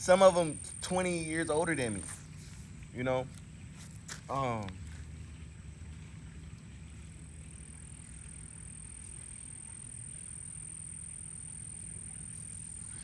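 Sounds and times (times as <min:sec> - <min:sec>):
high-pitched whine: 0:00.0 - 0:03.0
low background rumble: 0:00.0 - 0:13.0.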